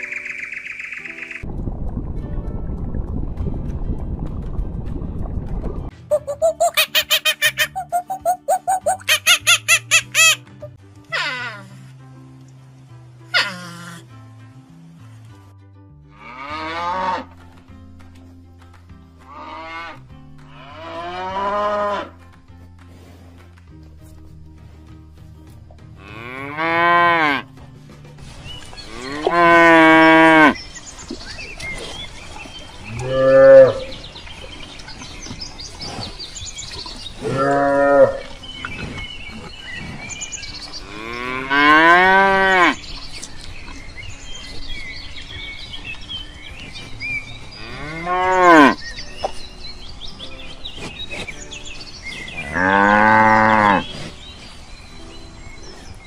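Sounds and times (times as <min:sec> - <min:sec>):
cows mooing: 0:16.1 - 0:17.3, 0:20.6 - 0:22.1, 0:26.0 - 0:27.4, 0:28.8 - 0:30.6, 0:32.8 - 0:34.0, 0:37.2 - 0:38.4, 0:40.8 - 0:42.8, 0:47.6 - 0:48.8, 0:52.3 - 0:54.0.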